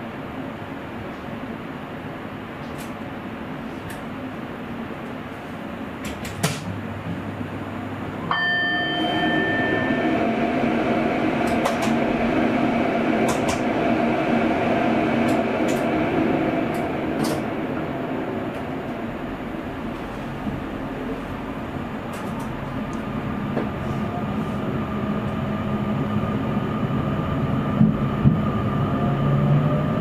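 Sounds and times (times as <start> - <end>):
steady hum: 0.0 - 30.0
train rolling noise: 0.0 - 30.0
ringing tone: 8.3 - 10.5.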